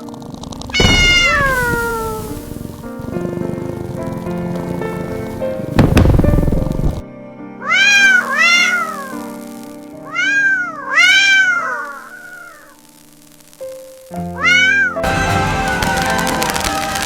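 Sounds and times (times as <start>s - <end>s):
cat meowing: 0.8s - 2.6s, 7.6s - 9.3s, 10.0s - 12.8s, 14.4s - 15.0s
background music: 13.9s - 17.0s.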